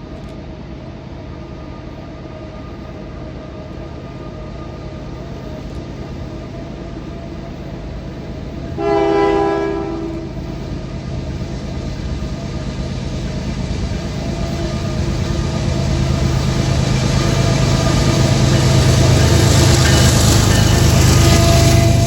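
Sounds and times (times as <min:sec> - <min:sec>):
diesel locomotive running: 0:00.0 - 0:22.0
locomotive air horn: 0:08.8 - 0:10.5, 0:21.1 - 0:22.0.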